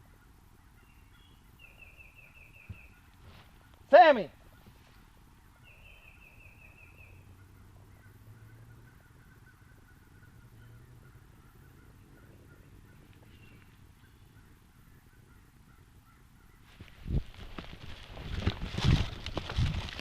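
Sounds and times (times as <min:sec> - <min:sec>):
distant bird calls: 0:00.0 - 0:19.5.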